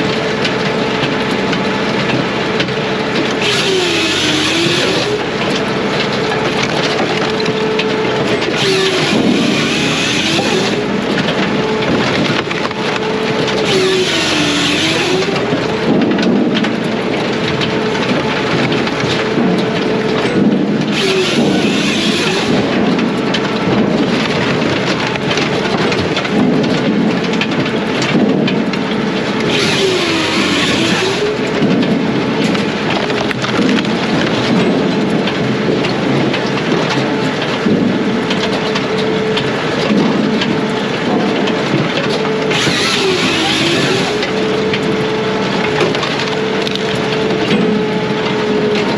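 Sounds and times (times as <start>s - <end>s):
firewood processor engine running: 0.0s - 48.9s
hissing cut noise: 8.6s - 10.8s, 13.6s - 15.4s.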